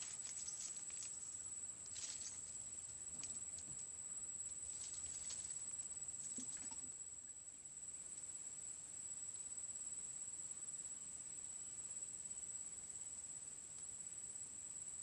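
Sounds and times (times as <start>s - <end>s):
light ticks and rustles: 0.0s - 6.8s
insect trill: 0.0s - 15.0s.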